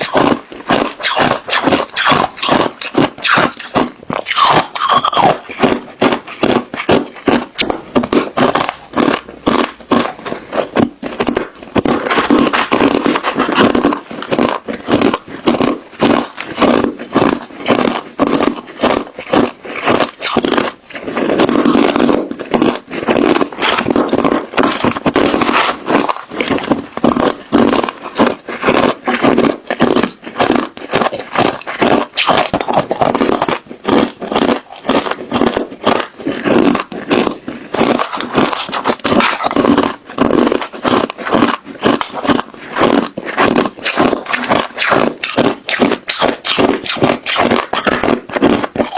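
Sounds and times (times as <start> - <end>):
ice cubes crunched and chewed: 0.0 - 48.9.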